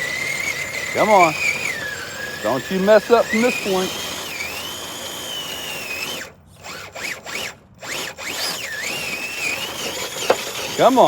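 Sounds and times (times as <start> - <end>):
electric motor whining: 0.0 - 11.0.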